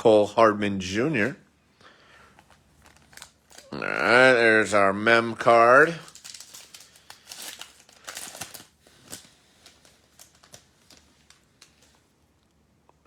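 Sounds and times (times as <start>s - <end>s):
card packaging crinkling: 2.2s - 4.4s, 5.4s - 12.2s.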